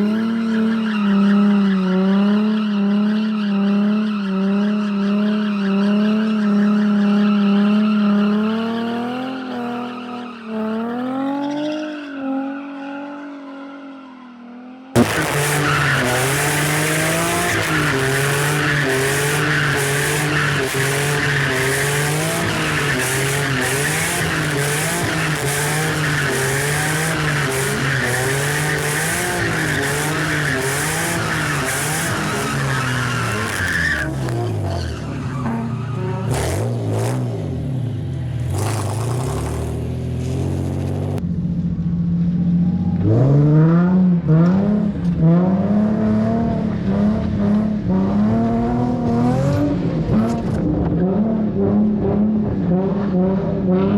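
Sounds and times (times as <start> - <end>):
car engine revving high: 14.8 - 41.2, 42.9 - 53.9
tyres squealing: 15.0 - 36.5.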